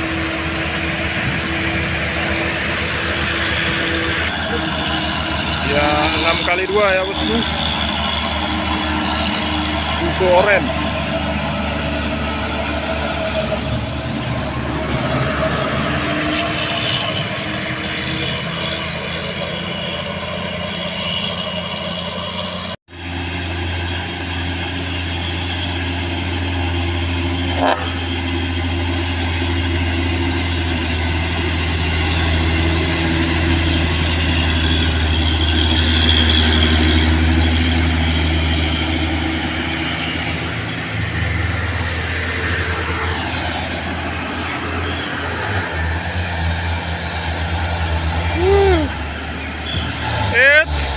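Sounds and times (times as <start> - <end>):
truck diesel engine under load: 0.0 - 50.9.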